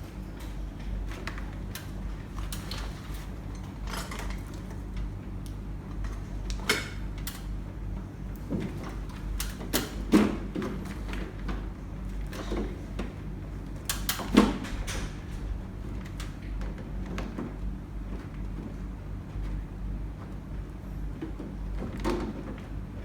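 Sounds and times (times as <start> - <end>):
steady low hum: 11.9 - 21.1.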